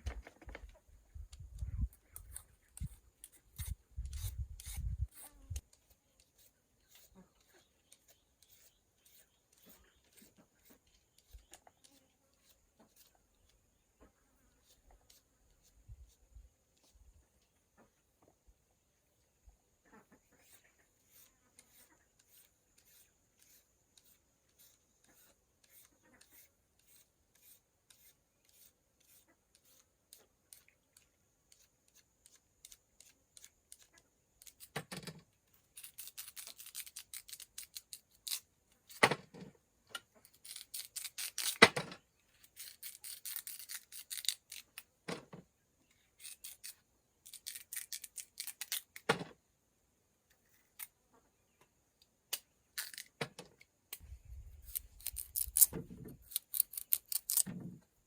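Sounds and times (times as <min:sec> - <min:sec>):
scraping and rubbing strokes: 0:00.6 - 0:18.0, 0:19.8 - 0:34.8, 0:42.3 - 0:44.9, 0:45.9 - 0:49.0, 0:54.0 - 0:57.7.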